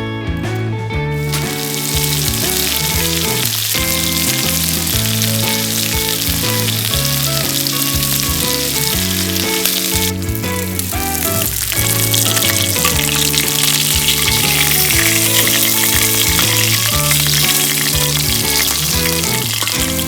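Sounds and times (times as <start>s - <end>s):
guitar music: 0.0s - 20.0s
food sizzling in a frying pan: 1.2s - 20.0s.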